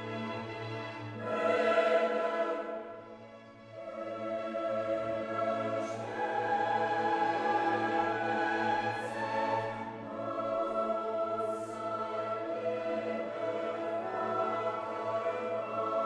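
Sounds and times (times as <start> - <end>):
choral music with orchestra: 0.0 - 16.0.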